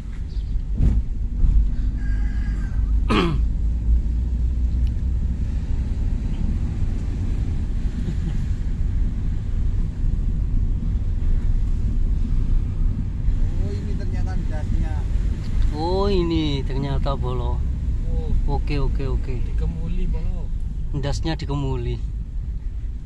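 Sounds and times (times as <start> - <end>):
vehicle rumble on road: 0.0 - 23.0.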